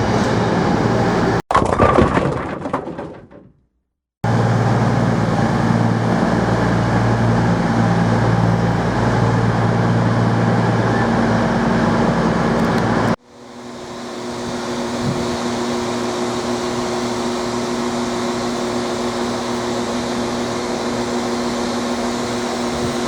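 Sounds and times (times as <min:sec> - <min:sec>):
low engine drone: 0:00.0 - 0:01.4, 0:04.2 - 0:23.0
train rumble: 0:00.0 - 0:01.4, 0:04.2 - 0:13.2.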